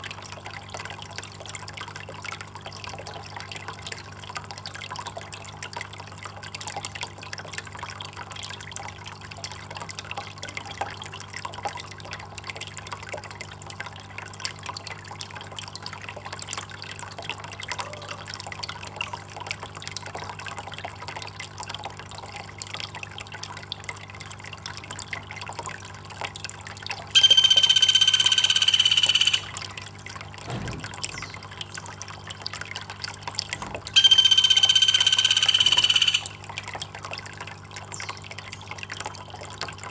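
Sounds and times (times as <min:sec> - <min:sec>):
high-pitched call: 0:27.2 - 0:29.8, 0:33.6 - 0:36.5.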